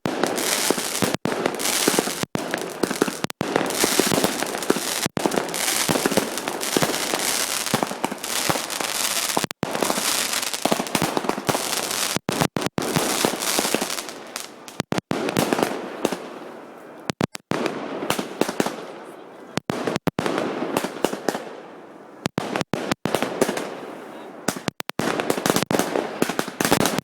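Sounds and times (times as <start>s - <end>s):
fireworks crackling: 0.0s - 21.6s, 22.2s - 27.0s.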